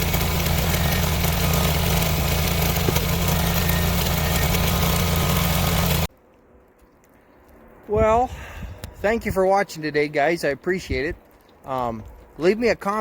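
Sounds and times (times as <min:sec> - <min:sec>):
engine idling: 0:00.0 - 0:06.1.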